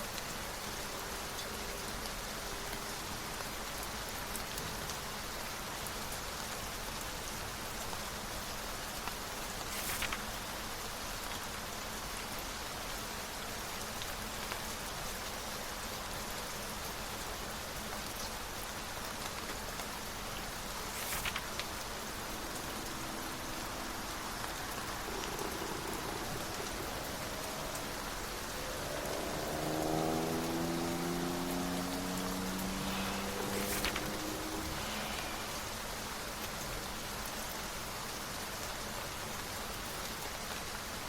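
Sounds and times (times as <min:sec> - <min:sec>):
steady rain falling: 0:00.0 - 0:41.0
brief crackle: 0:09.6 - 0:10.3, 0:20.9 - 0:21.8, 0:32.8 - 0:35.6.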